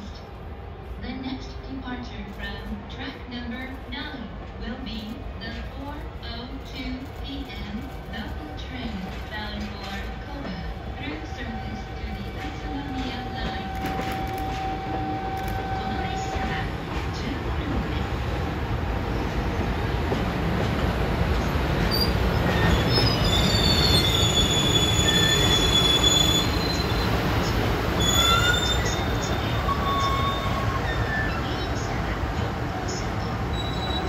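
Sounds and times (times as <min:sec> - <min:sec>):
train rolling with low rumble: 0:00.0 - 0:34.0
metal-on-metal squeals: 0:28.0 - 0:31.6.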